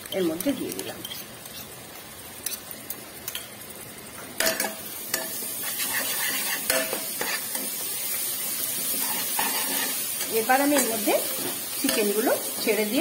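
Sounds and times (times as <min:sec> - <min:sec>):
onions sizzling in hot oil: 0:00.0 - 0:13.0
spatula scraping a pot: 0:05.2 - 0:07.8, 0:08.8 - 0:10.1.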